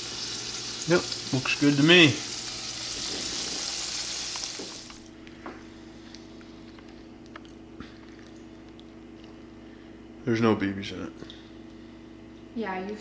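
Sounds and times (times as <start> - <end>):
food sizzling in frying oil: 0.0 - 5.0
steady low hum: 2.1 - 13.0.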